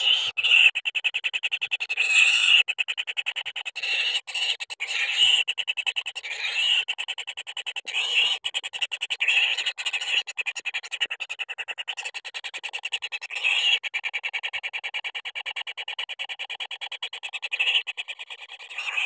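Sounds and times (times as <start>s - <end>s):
nestlings begging with rattling trills: 0.0s - 0.7s, 17.6s - 19.0s.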